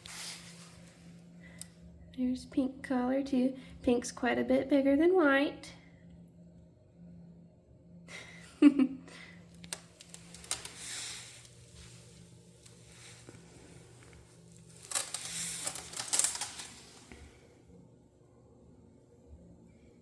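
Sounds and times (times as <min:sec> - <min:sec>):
scratching and rustling: 0:09.7 - 0:17.3.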